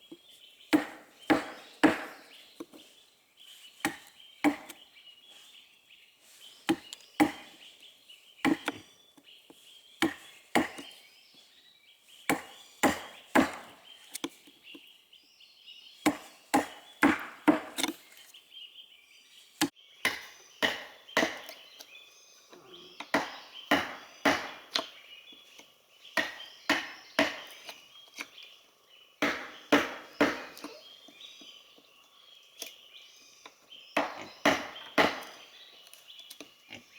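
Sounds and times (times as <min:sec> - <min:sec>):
axe chopping wood: 0:00.7 - 0:02.8, 0:03.8 - 0:04.8, 0:06.6 - 0:07.6, 0:08.4 - 0:08.8, 0:10.0 - 0:11.0, 0:12.3 - 0:14.4, 0:16.0 - 0:18.0, 0:19.6 - 0:21.6, 0:23.1 - 0:25.0, 0:26.2 - 0:28.3, 0:29.2 - 0:30.9, 0:34.0 - 0:35.5.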